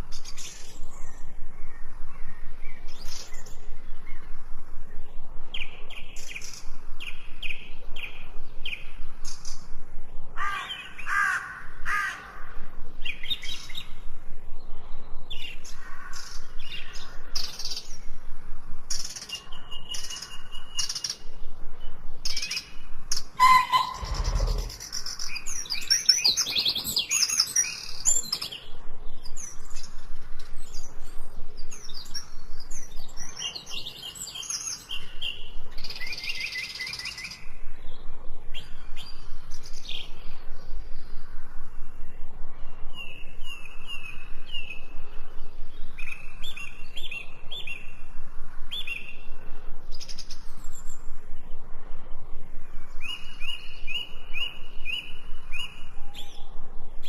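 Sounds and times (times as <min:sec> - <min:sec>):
small birds singing and chirping: 0:00.0 - 0:57.0
short repeated bird call: 0:23.4 - 0:25.0.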